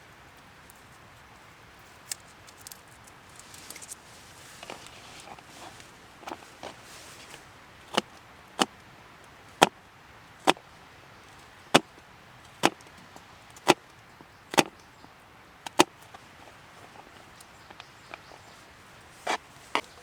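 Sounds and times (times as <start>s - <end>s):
hatchet chopping firewood: 12.6s - 12.9s, 13.5s - 13.8s, 14.5s - 14.7s, 15.7s - 16.2s.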